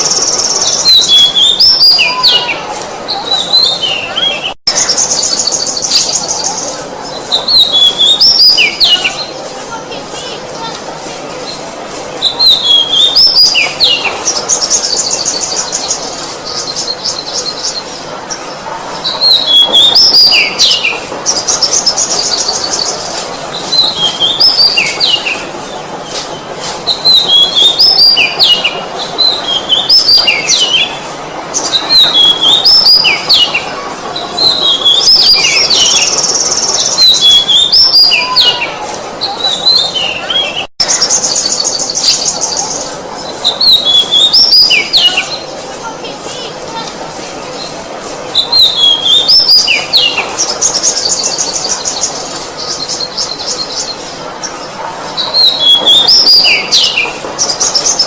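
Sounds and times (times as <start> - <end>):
bird singing whistled phrases: 0.0 - 6.4, 12.2 - 17.7, 43.5 - 45.4, 48.4 - 50.2, 55.2 - 58.0
fast rattling bird trill: 0.0 - 58.0.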